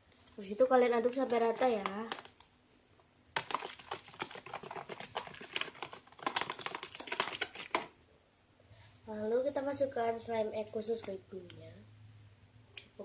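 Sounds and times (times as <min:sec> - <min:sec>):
stirrer clicking against container: 0:01.1 - 0:02.4, 0:03.4 - 0:07.9.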